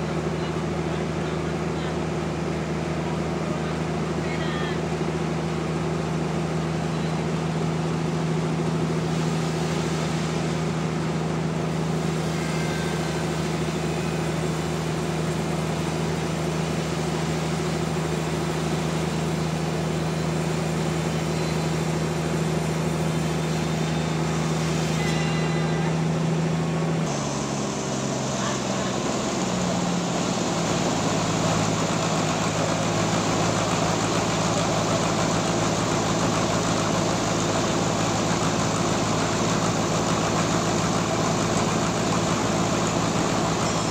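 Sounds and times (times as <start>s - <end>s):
sawmill engine humming: 0.0s - 43.9s
rough machine noise: 5.9s - 43.9s.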